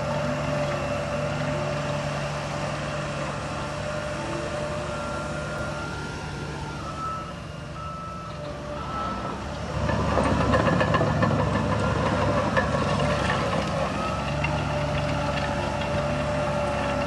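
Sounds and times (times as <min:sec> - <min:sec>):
diesel earthmoving machinery running: 0:00.0 - 0:17.0
reversing alarm beeps: 0:04.2 - 0:09.5.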